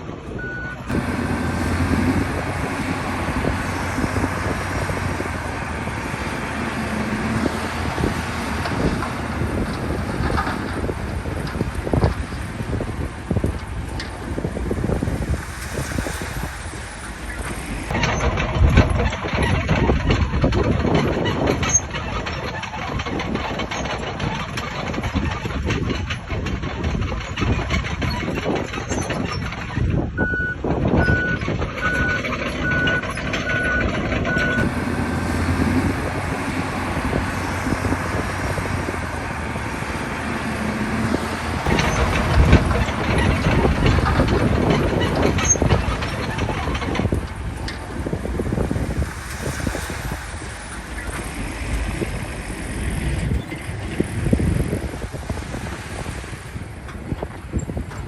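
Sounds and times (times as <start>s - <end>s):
bulldozer diesel engine rattling: 0.0s - 58.0s
reversing alarm beeps: 0.4s - 0.8s, 30.2s - 34.6s.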